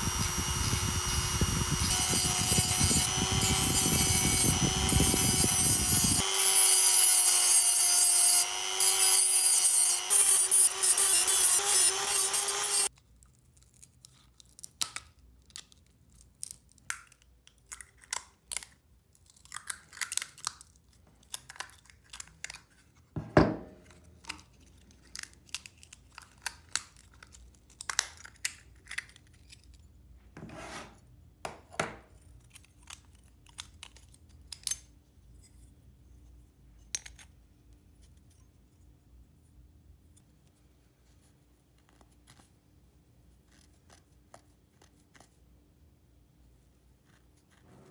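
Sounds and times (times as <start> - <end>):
scraping and snipping hand work: 0.0 - 15.8, 43.4 - 45.4.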